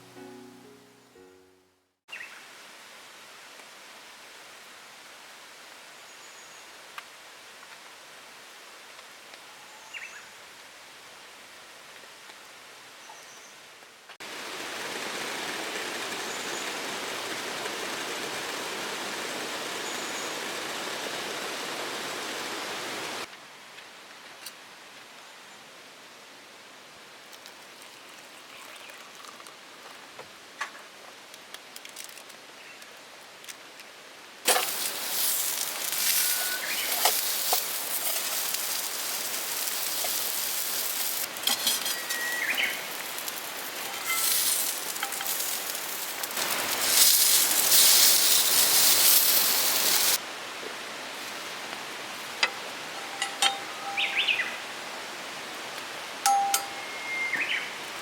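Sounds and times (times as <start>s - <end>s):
rain falling: 14.1s - 23.3s, 31.2s - 56.8s
birds chirping: 34.7s - 41.1s, 53.0s - 54.6s.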